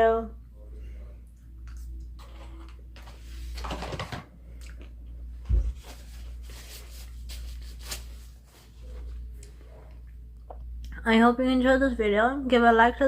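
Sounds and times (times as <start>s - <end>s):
rustling scrape: 5.7s - 9.8s.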